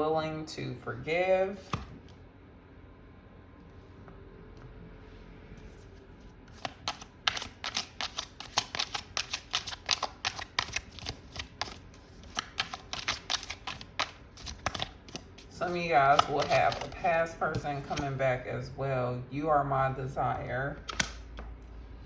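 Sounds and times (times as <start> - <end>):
cards being shuffled: 1.6 - 2.2, 5.1 - 18.2, 20.8 - 21.6.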